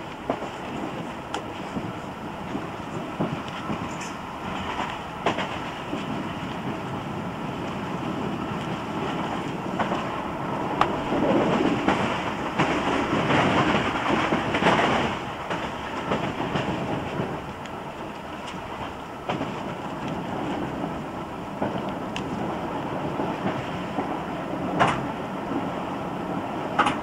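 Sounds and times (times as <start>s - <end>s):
train wheels running on track: 0.0s - 27.0s
clicks over rail joints: 24.7s - 25.1s, 26.8s - 27.0s.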